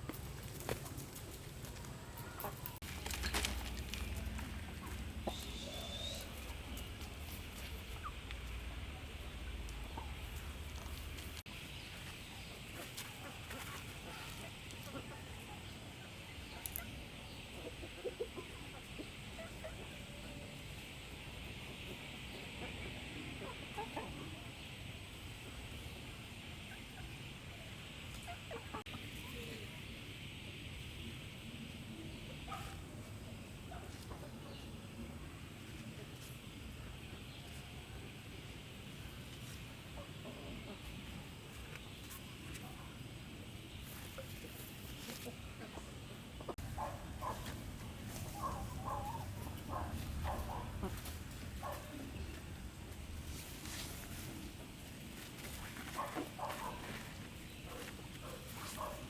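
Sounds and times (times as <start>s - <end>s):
chickens clucking: 0.0s - 31.4s, 32.0s - 59.0s
chicken calls: 1.7s - 11.2s, 43.8s - 52.7s.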